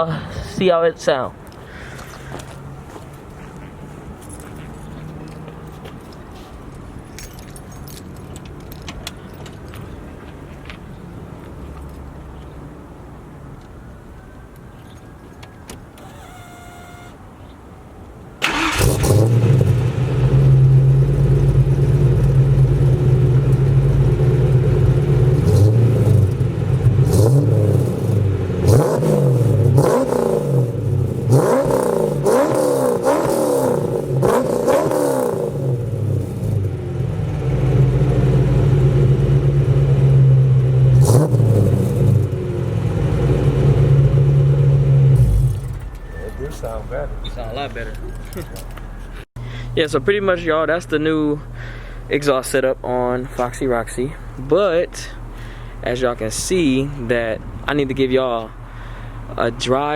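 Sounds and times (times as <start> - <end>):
vvehicle engine idling: 14.8 - 17.5, 18.4 - 27.1, 35.5 - 41.1, 42.0 - 59.9
car engine starting: 15.7 - 17.2, 18.4 - 59.9
engine revving: 18.4 - 47.2.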